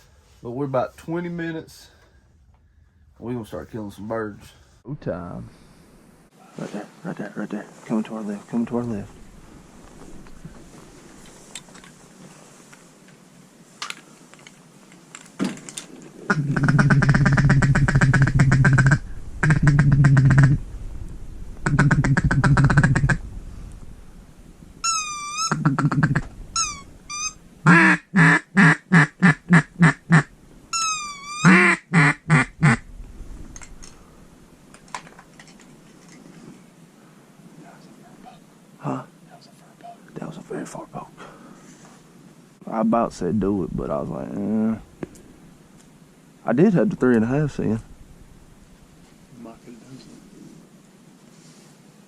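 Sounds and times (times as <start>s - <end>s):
duck call chattering runs: 16.3s - 20.6s, 21.6s - 23.2s, 24.8s - 32.8s
duck call quacks: 16.3s - 20.6s, 21.6s - 23.2s, 24.8s - 32.8s
wavering whistle notes: 24.8s - 25.6s, 26.6s - 27.4s, 30.8s - 31.5s.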